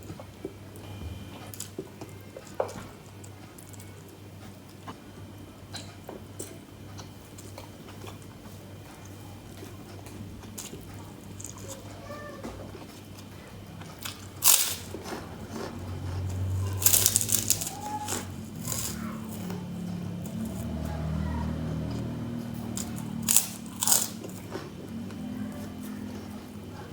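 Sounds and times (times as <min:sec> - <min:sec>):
crackers being chewed: 0:05.7 - 0:12.0, 0:12.6 - 0:26.9
crunchy bite: 0:14.0 - 0:15.7, 0:16.4 - 0:19.5, 0:22.7 - 0:24.6.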